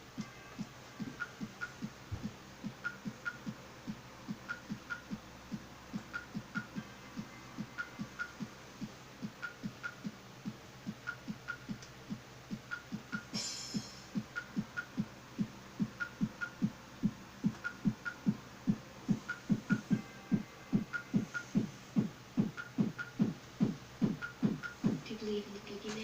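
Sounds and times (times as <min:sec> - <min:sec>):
low throbbing thuds: 0:09.2 - 0:25.1.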